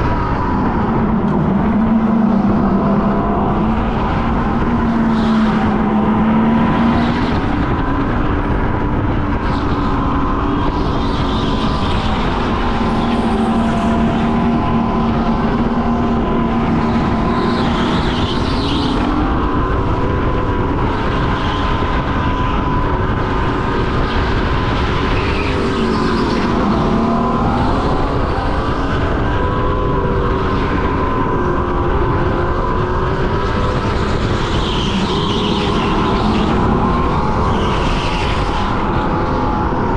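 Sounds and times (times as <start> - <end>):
go-kart engine racing: 0.0 - 39.9
steady rushing noise: 0.0 - 39.9.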